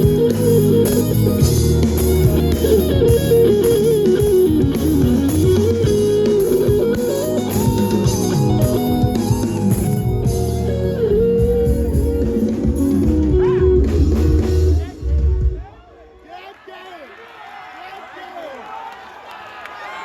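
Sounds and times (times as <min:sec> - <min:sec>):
bass: 0:00.0 - 0:15.6
electric guitar lead: 0:00.0 - 0:15.6
steady beat: 0:00.0 - 0:15.8.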